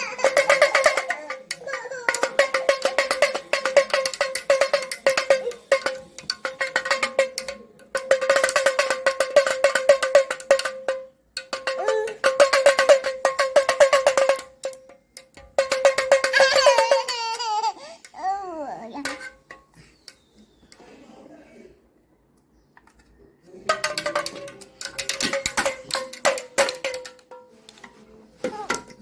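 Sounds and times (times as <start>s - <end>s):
rattle drum strokes: 0.0s - 14.8s.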